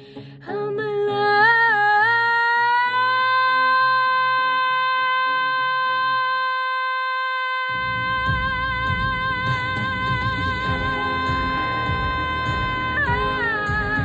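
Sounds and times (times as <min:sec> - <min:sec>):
soft low accompaniment: 0:07.7 - 0:14.0
woman singing high note: 0:10.2 - 0:14.0.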